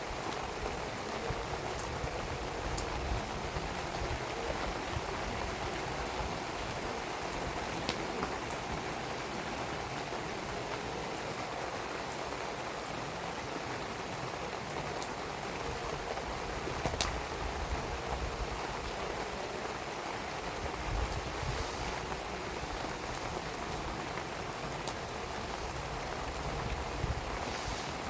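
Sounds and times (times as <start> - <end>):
steady rain falling: 0.0 - 28.0
wood fire crackling: 14.6 - 28.0.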